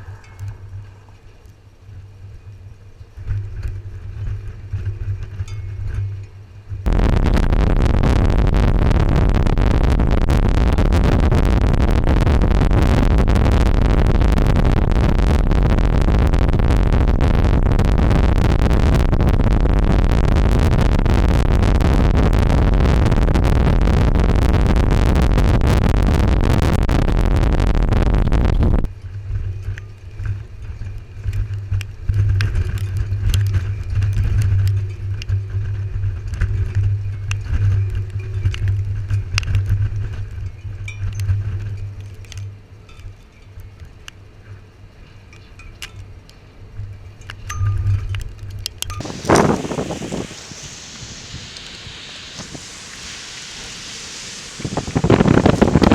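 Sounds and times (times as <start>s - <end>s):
loud rushing noise: 6.9s - 28.9s, 49.0s - 55.9s.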